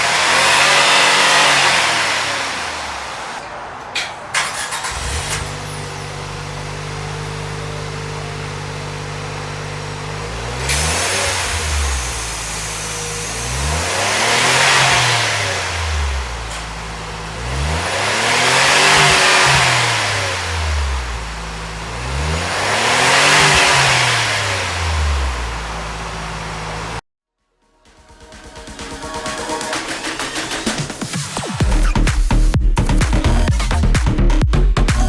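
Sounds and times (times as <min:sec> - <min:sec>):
car engine idling and revving: 0:00.0 - 0:27.0, 0:28.0 - 0:35.0.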